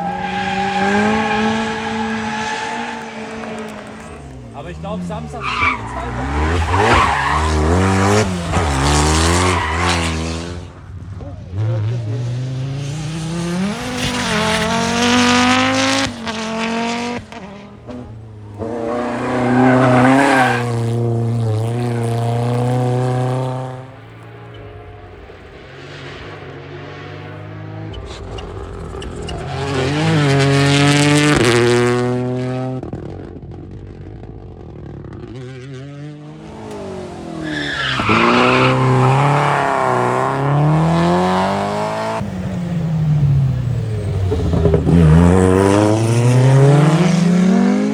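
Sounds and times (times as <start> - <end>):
tyre squeal: 0.0 - 4.3, 5.4 - 10.2, 18.6 - 20.8, 36.6 - 41.2
rally car engine revving: 0.0 - 47.9.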